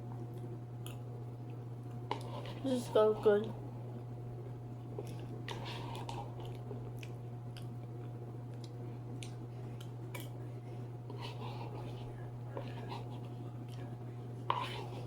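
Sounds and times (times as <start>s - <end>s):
person chewing food: 4.8s - 10.4s.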